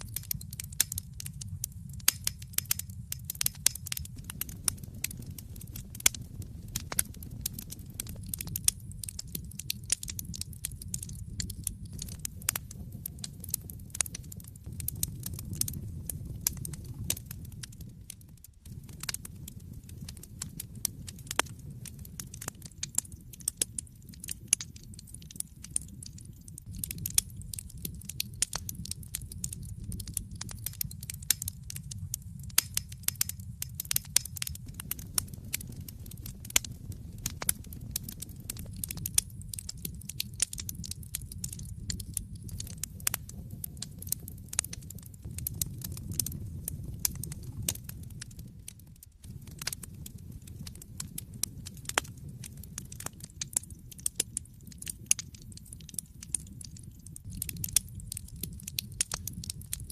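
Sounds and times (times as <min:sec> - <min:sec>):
burning logs crackling and popping: 0:00.0 - 0:59.9
fire flames rumbling: 0:00.0 - 0:59.9.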